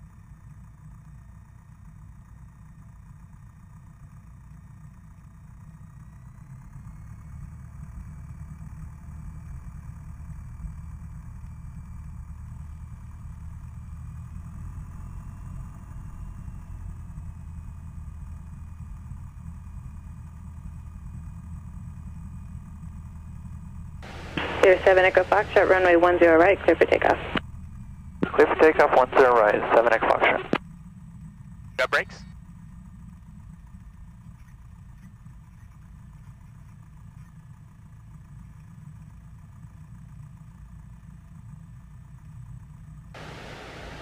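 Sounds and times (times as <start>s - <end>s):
plane engine idling: 0.1s - 39.0s, 43.2s - 44.0s
faint rising whine: 24.0s - 30.6s, 43.2s - 44.0s.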